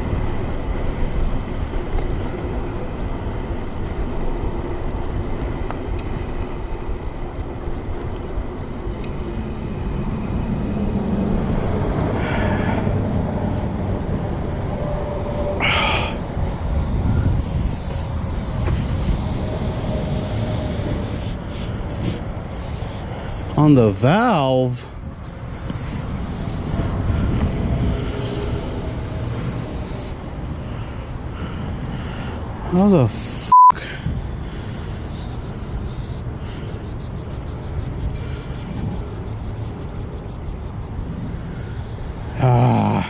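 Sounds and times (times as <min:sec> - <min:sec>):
wind rushing over microphone: 0:00.0 - 0:23.9, 0:24.5 - 0:35.7
tyre and road noise: 0:00.0 - 0:43.0.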